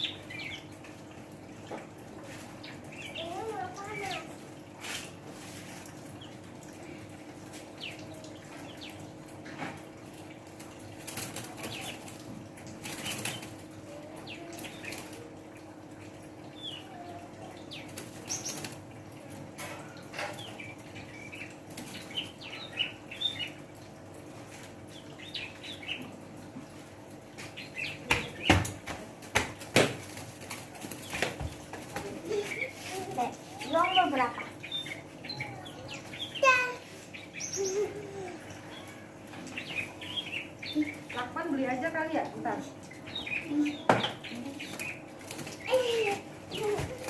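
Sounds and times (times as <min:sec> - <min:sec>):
wings fluttering: 0:10.4 - 0:15.4, 0:27.4 - 0:34.6, 0:43.9 - 0:47.0.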